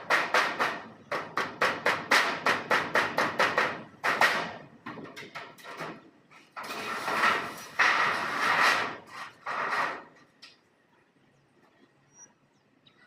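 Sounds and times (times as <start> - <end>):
rasping scraping noise: 6.6 - 10.2.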